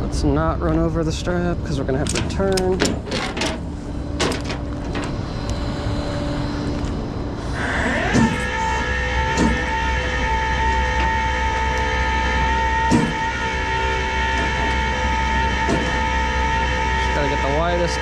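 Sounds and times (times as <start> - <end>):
rising whine: 0.0 - 18.0
truck engine running: 0.0 - 18.0
clicks and knocks: 2.0 - 5.2.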